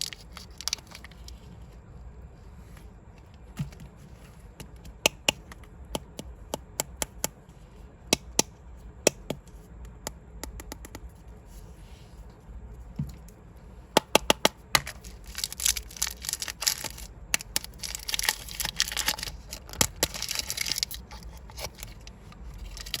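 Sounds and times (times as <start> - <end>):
candy wrapper crinkling: 0.0 - 1.3, 14.8 - 23.0.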